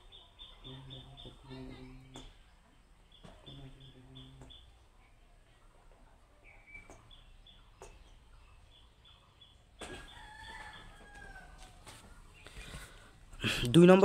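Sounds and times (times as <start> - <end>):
bird chirps: 0.0 - 5.2, 6.4 - 11.5.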